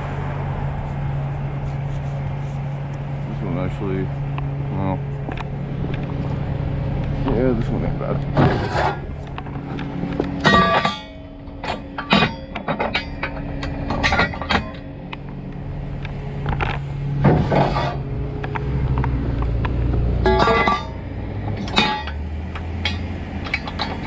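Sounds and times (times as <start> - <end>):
vehicle engine idling: 0.0 - 24.0
sharp metallic clanks: 8.2 - 19.1, 20.1 - 24.0.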